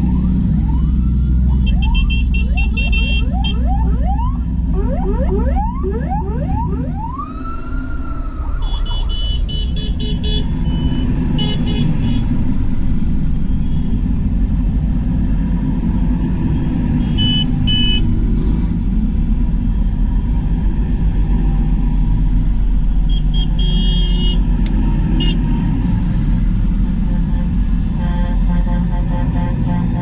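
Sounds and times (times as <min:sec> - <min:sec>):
siren wail: 0:00.0 - 0:12.2
tractors rumbling: 0:00.0 - 0:30.0.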